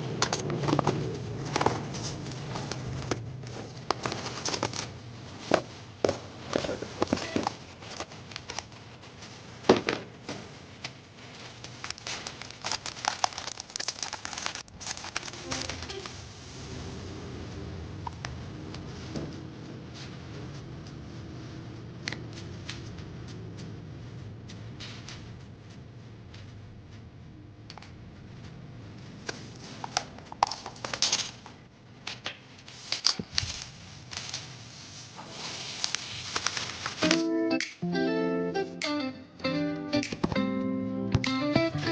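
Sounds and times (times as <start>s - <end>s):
packaging clicks and rustles: 0.2s - 5.7s, 11.6s - 16.2s
packaging crinkling and rustling: 0.2s - 16.3s, 29.2s - 37.3s.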